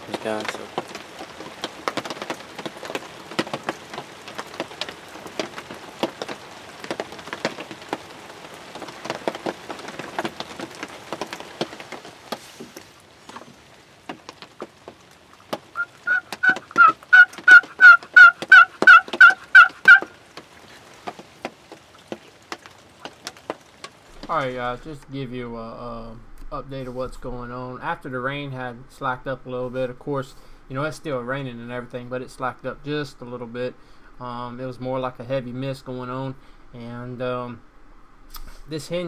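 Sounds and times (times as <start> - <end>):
raindrops tapping: 0.0 - 25.1
turkey call hen yelps: 15.8 - 20.2.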